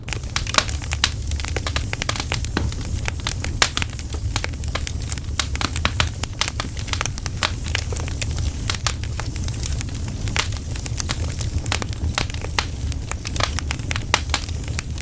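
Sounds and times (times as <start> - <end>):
campfire crackling: 0.0 - 15.0
low rumble of fire: 0.0 - 15.0.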